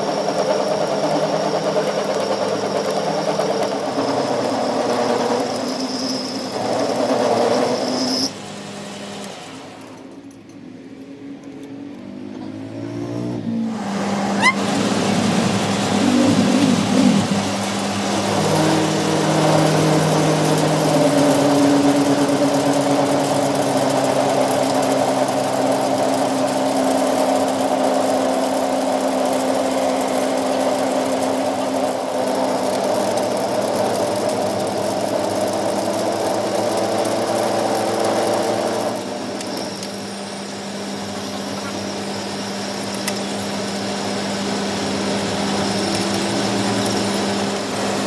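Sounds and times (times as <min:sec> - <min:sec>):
machine motor humming: 0:13.6 - 0:25.8.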